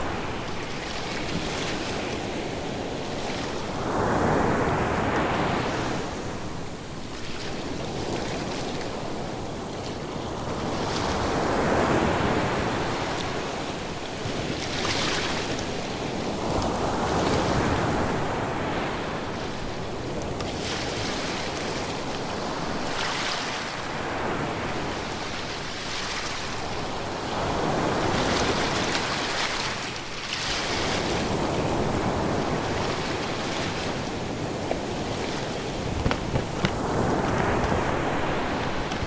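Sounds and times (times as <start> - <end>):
ocean waves breaking: 28.6 - 39.0.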